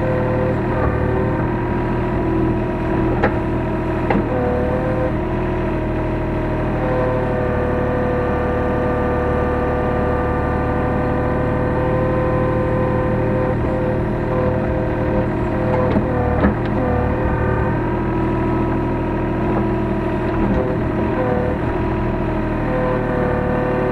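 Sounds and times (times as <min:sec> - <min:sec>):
excavator diesel engine whining: 0:00.0 - 0:23.9.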